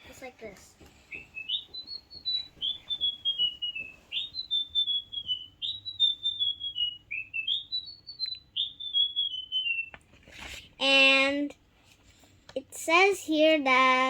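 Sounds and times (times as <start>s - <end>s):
toy bird chirping through speaker: 1.1s - 10.0s.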